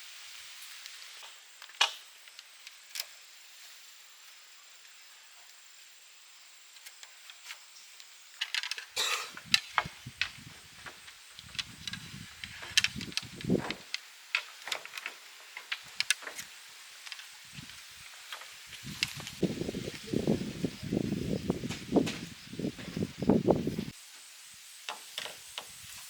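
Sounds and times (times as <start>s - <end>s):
faint hiss: 0.0s - 26.0s
handling knocks and clicks: 8.4s - 19.3s.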